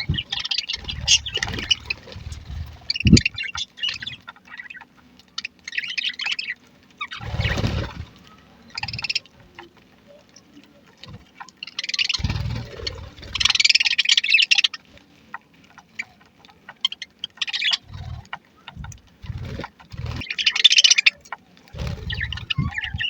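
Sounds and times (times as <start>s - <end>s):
low rumbles: 0.0s - 4.2s, 21.8s - 23.0s
budgerigars chattering and chirping: 0.0s - 23.0s.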